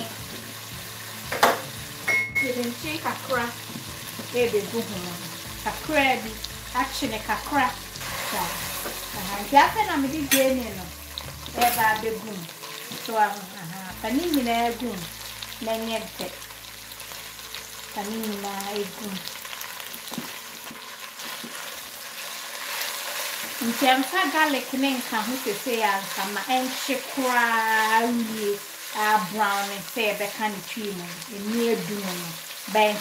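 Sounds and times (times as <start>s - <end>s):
meat and onions sizzling in a pot: 0.0s - 33.0s
spatula stirring in a pot: 19.2s - 30.4s.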